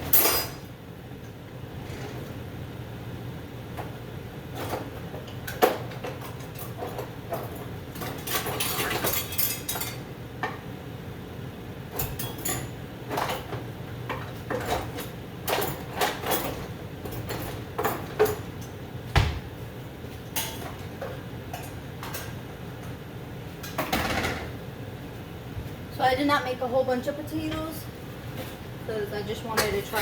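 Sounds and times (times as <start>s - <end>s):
dishes and utensils clattering: 0.0s - 0.7s, 4.6s - 10.6s, 11.9s - 18.8s, 20.3s - 23.0s, 23.6s - 24.6s.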